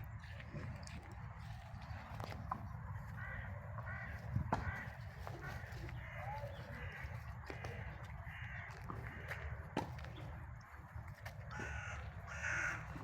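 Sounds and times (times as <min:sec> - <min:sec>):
crow cawing: 0:03.1 - 0:09.7, 0:11.5 - 0:13.0.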